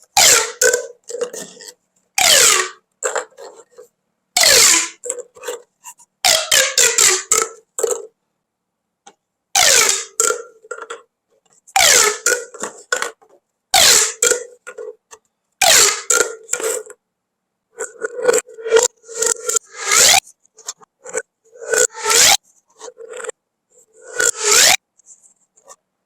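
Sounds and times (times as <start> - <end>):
plastic pop tubes zipping: 0.1 - 3.8, 4.4 - 5.6, 6.2 - 8.1, 9.6 - 11.0, 11.8 - 13.2, 13.8 - 15.0, 15.6 - 17.0, 17.8 - 20.2, 21.1 - 22.4, 24.0 - 24.8.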